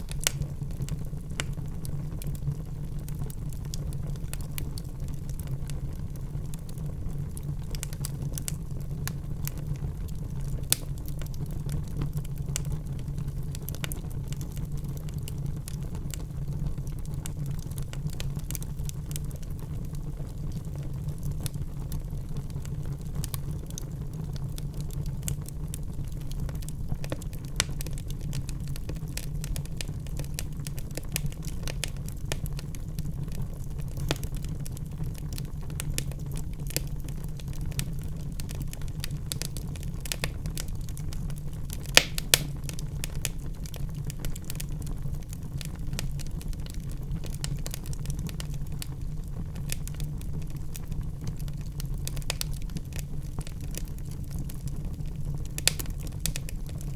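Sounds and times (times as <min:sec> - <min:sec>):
fire pops: 0:00.0 - 0:06.1, 0:22.4 - 0:56.9
wood fire crackling: 0:00.0 - 0:56.9.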